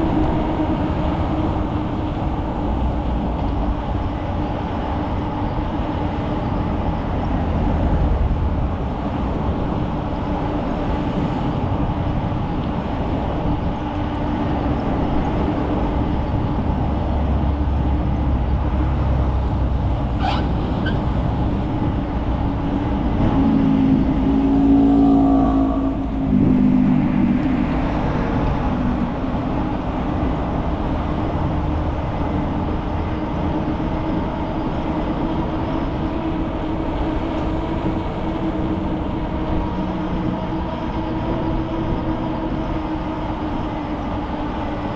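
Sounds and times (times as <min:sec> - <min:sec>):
bicycle ride rumble: 0:00.0 - 0:44.9
road traffic noise: 0:00.0 - 0:44.9
short high squeak: 0:20.2 - 0:21.0
vehicle passing: 0:23.1 - 0:30.5.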